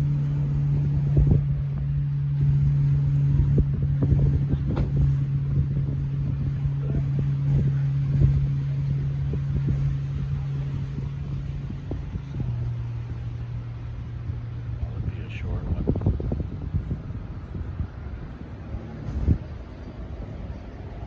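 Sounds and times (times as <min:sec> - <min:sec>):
vehicle idling: 0:00.0 - 0:21.0
soft thumps and knocks: 0:04.0 - 0:05.2.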